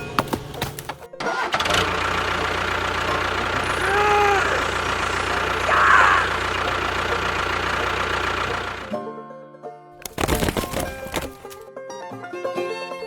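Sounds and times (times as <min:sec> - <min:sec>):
vehicle engine starting and idling: 0:00.0 - 0:09.0.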